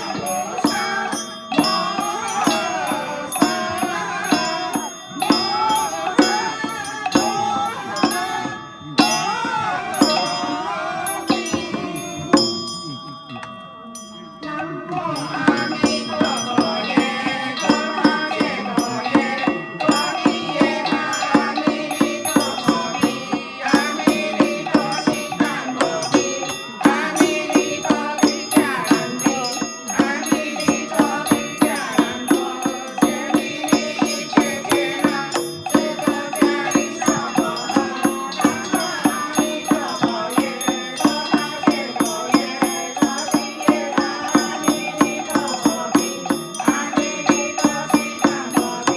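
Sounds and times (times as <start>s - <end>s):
percussion beat: 0.0s - 48.9s
person chanting: 0.0s - 48.9s.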